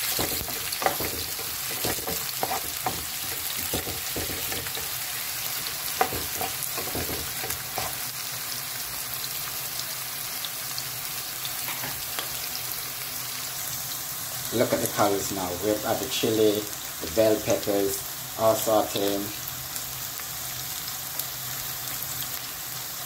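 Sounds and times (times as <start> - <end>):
utensil scraping a pan: 0.0 - 5.0, 5.6 - 8.0
onions sizzling in hot oil: 0.0 - 23.0.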